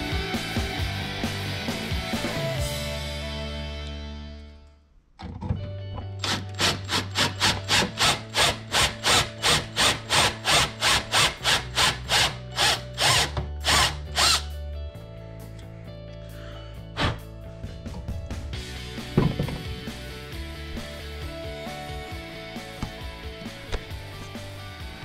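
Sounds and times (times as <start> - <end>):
cordless drill boring through metal: 6.2 - 14.5.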